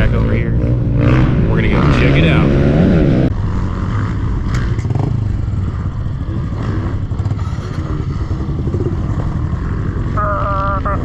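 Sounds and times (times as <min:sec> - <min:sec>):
small motorbike engine revving: 0:00.5 - 0:11.0
engine clatter: 0:03.8 - 0:11.0.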